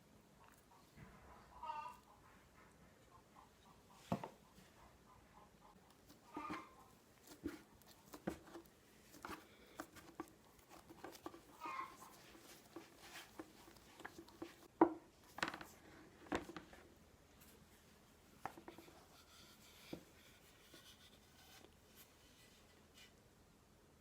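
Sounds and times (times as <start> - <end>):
faint rubbing: 18.4 - 23.2.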